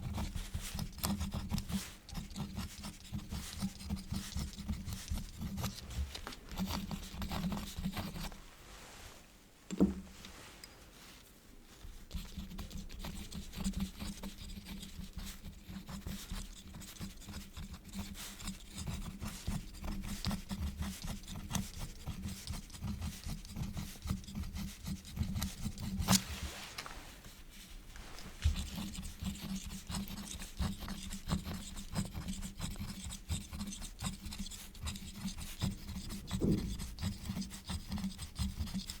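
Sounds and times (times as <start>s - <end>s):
quill scratching on paper: 0.0s - 8.4s, 11.8s - 26.4s, 27.5s - 39.0s
sharp knock: 36.3s - 36.9s.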